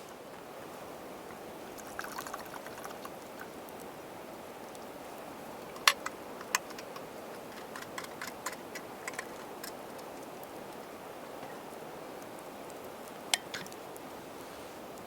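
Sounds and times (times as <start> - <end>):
steady low hiss: 0.0 - 15.0
sharp clicks and ticks: 5.7 - 10.1.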